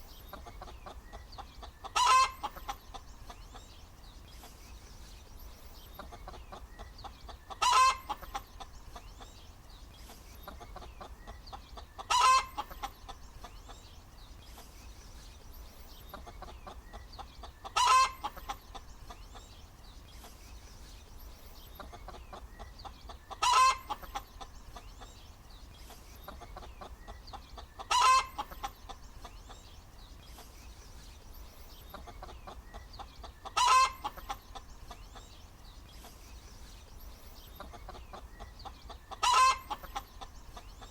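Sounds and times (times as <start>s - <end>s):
hen clucking: 0.1s - 3.8s, 5.8s - 9.4s, 10.0s - 14.0s, 16.0s - 19.6s, 21.6s - 29.7s, 31.8s - 35.4s, 37.4s - 40.9s
loud hen call: 39.2s - 39.8s.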